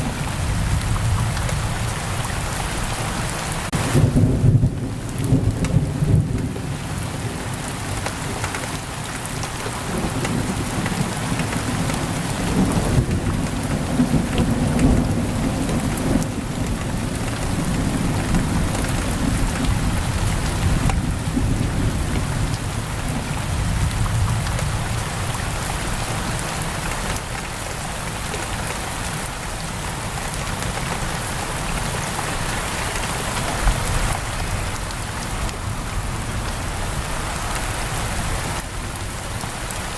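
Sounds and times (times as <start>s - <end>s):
heavy rain on a window: 0.0s - 39.9s
thunder rumbling: 3.7s - 7.5s, 9.5s - 26.4s.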